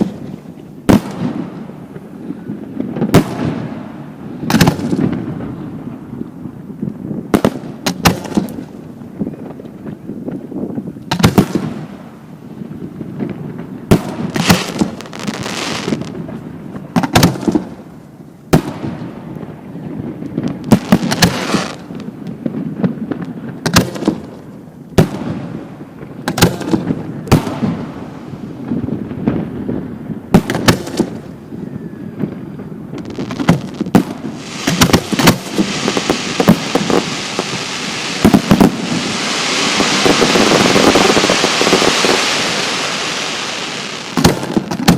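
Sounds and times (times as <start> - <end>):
firework shells bursting: 14.1 - 16.2, 20.7 - 22.0, 33.0 - 44.9
loud rushing hiss: 33.1 - 44.6.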